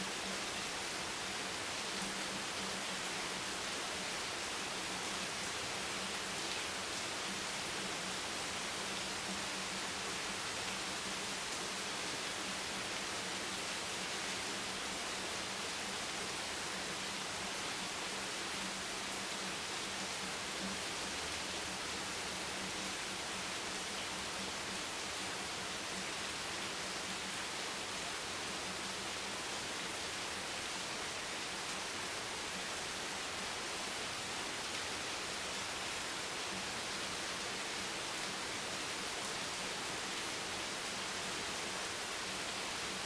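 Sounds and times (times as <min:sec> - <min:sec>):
rain hiss: 0:00.0 - 0:43.0.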